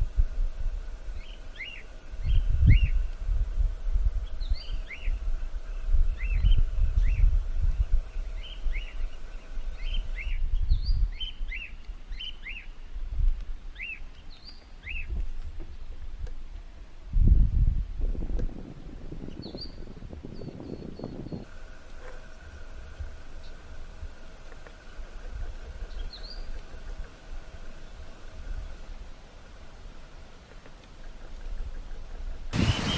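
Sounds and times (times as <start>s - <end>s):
cockatiels whistling calls: 32.6s - 32.9s
gusty low rumble: 32.6s - 32.9s.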